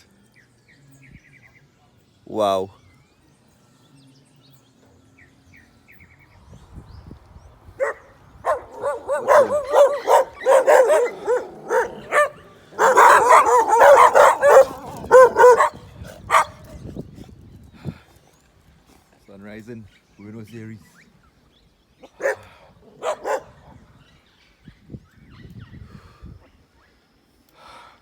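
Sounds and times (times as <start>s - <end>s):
dog barking: 7.8s - 16.8s, 22.2s - 23.6s.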